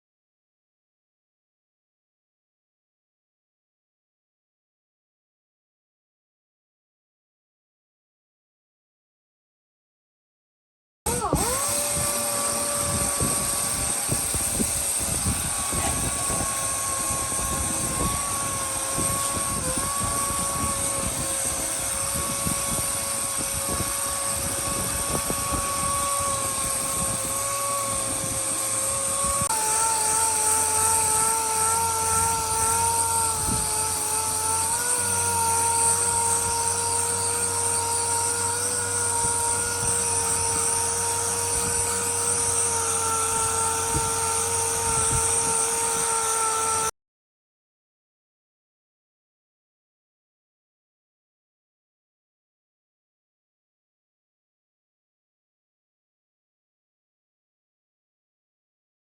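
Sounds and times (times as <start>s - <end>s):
electric power tool whining: 11.1s - 46.9s.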